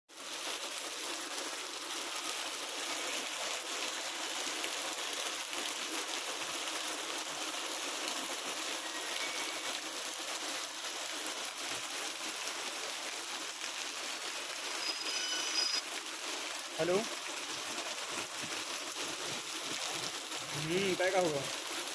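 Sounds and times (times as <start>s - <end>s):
heavy rain: 0.1s - 21.9s
running water: 0.1s - 21.9s.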